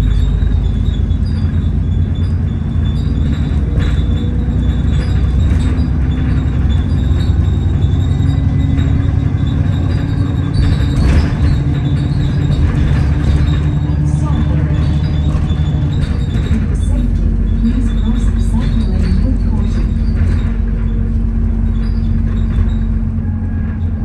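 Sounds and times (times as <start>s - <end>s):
bus engine drone: 0.0s - 24.0s
light rattles: 0.0s - 24.0s.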